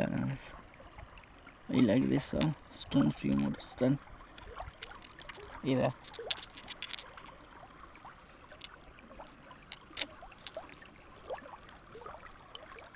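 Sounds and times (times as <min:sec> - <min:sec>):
river water babbling: 0:00.0 - 0:12.9.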